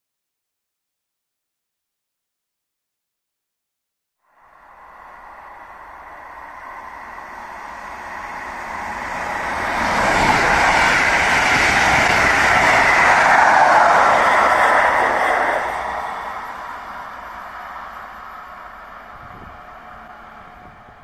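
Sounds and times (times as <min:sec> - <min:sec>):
train passing on rails: 0:04.2 - 0:21.0.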